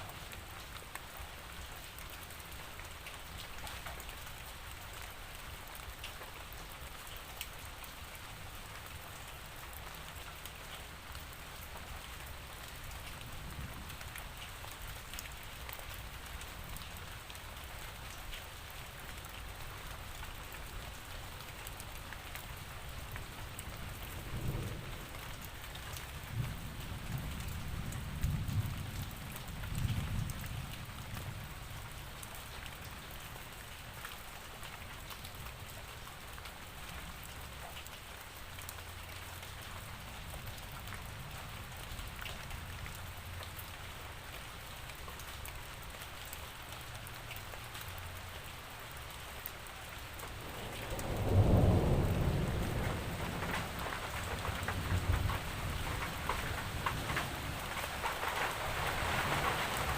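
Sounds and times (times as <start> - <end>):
rain falling: 0.0 - 59.9
raindrops ticking: 0.0 - 59.9
thunder rumbling: 50.2 - 59.9.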